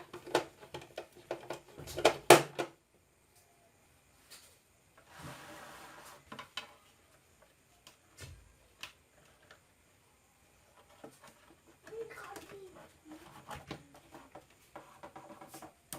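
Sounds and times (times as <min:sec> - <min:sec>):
soft rustle: 0:04.1 - 0:09.7.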